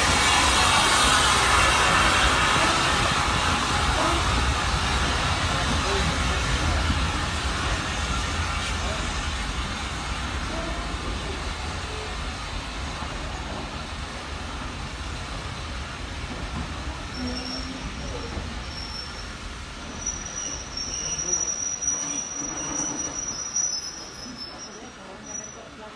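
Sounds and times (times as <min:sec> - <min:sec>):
train rumbling: 0:00.0 - 0:25.9
high brake squeal: 0:17.1 - 0:25.8.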